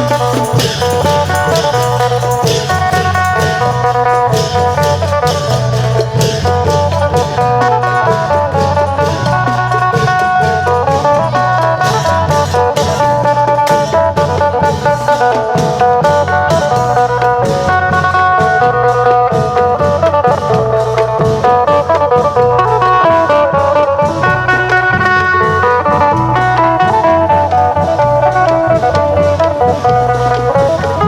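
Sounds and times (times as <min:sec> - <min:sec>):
long drums and percussion: 0:00.0 - 0:31.0
plucked lute melody: 0:00.0 - 0:31.0.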